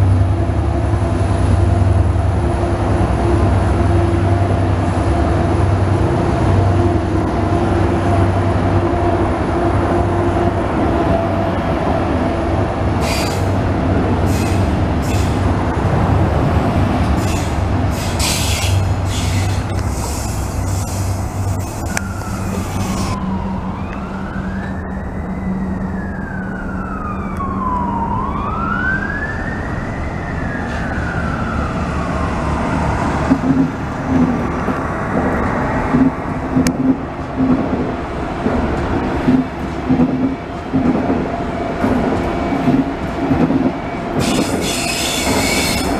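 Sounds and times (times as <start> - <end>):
train rumbling: 0.0 - 28.1, 29.6 - 45.9
emergency siren wailing: 21.6 - 33.9.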